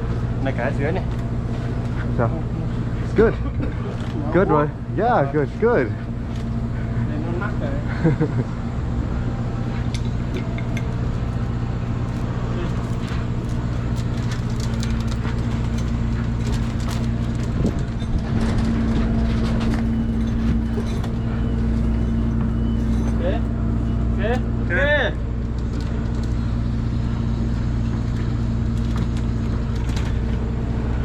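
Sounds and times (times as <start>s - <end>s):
boat engine droning: 0.0s - 31.0s
knocks and clanks of gear on deck: 6.2s - 6.6s, 9.8s - 30.6s.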